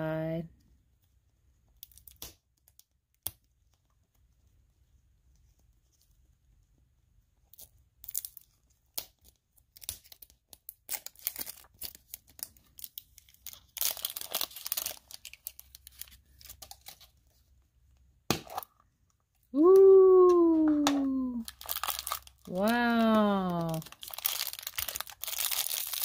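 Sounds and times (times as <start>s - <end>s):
wrapping tearing and crackling: 1.7s - 3.8s, 7.5s - 17.2s, 19.6s - 26.0s.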